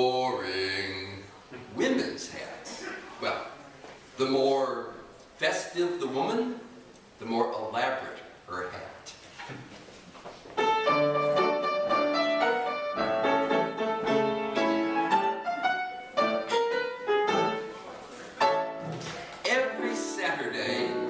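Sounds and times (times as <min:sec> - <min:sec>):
piano playing: 0:10.6 - 0:21.0.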